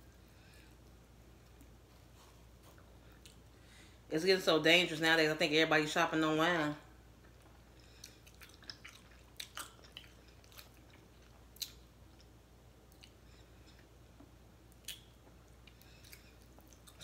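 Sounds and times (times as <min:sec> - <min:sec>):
crunching chicken wings: 0:08.0 - 0:12.3.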